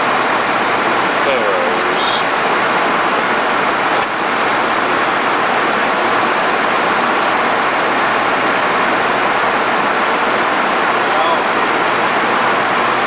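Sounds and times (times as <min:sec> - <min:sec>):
airflow over cockpit: 0:00.0 - 0:07.3
jet engines humming: 0:00.0 - 0:13.0.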